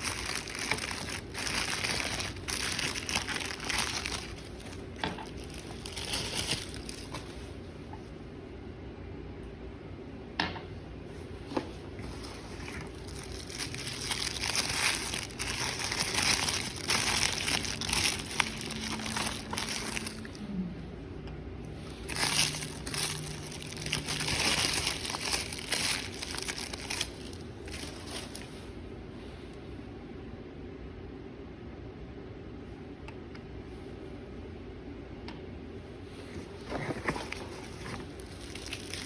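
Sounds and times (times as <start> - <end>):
packaging crinkling: 0.0 - 7.5, 12.1 - 20.4, 21.6 - 28.6, 36.5 - 39.0.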